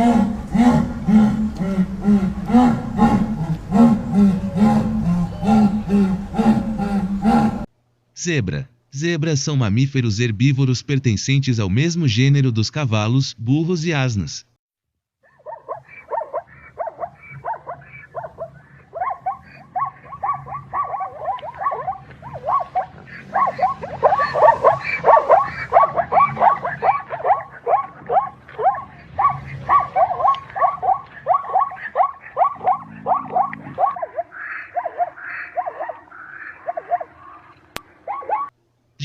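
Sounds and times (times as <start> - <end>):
zebra barking yelps: 15.2 - 38.5.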